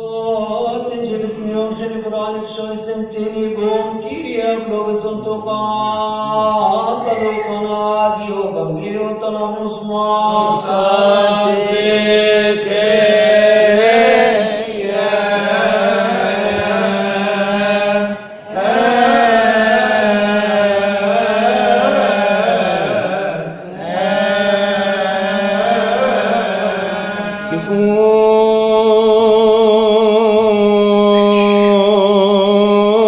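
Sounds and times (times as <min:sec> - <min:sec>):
man chanting melismatic melody: 0:00.0 - 0:33.0.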